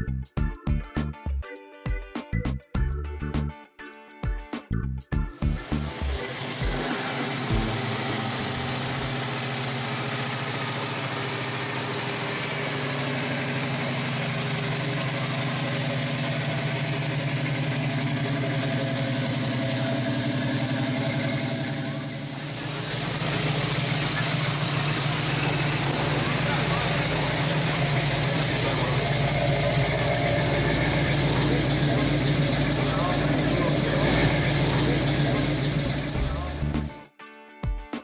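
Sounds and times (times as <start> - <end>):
car engine idling: 5.5 - 37.0.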